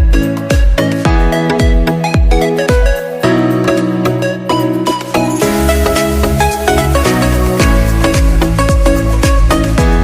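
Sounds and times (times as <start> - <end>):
kick drum beat: 0.0 - 3.1, 7.0 - 10.0.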